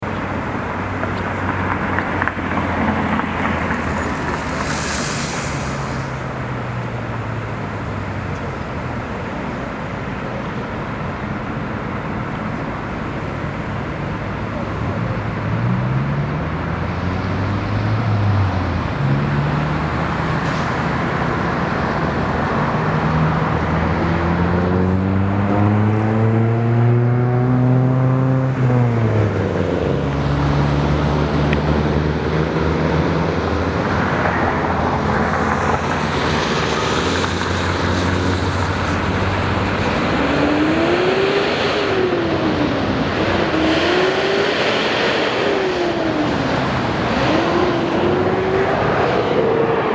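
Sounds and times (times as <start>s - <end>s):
vehicles passing on road: 0.0s - 49.9s
loud rushing noise: 1.5s - 10.4s, 31.1s - 49.9s.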